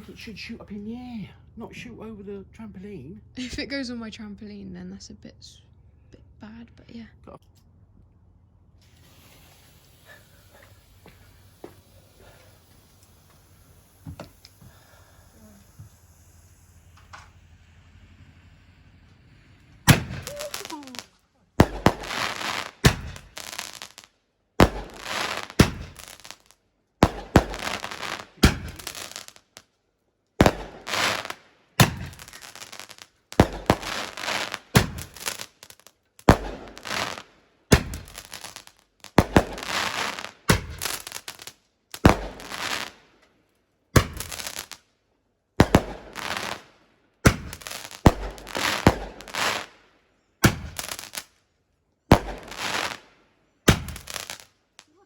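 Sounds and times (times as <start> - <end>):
fireworks bangs with crackling tails: 8.8 - 29.7, 30.4 - 43.2, 43.8 - 44.9, 45.6 - 51.4, 52.1 - 55.0.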